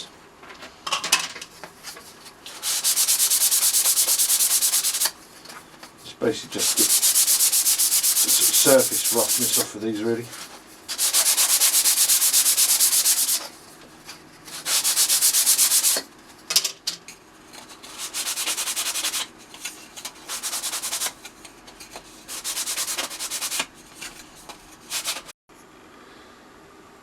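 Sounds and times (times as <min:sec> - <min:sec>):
sandpaper rubbing on plywood: 0:02.5 - 0:05.2, 0:06.5 - 0:09.7, 0:10.3 - 0:13.5, 0:14.5 - 0:16.0, 0:17.9 - 0:19.3, 0:20.2 - 0:21.2, 0:22.3 - 0:23.7, 0:24.8 - 0:25.3.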